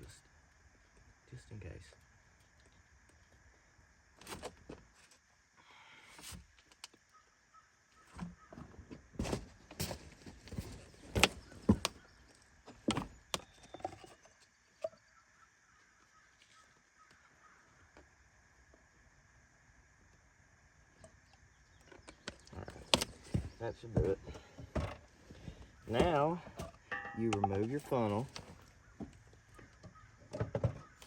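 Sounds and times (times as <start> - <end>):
bottle and funnel knocks and clicks: 26.9 - 27.6.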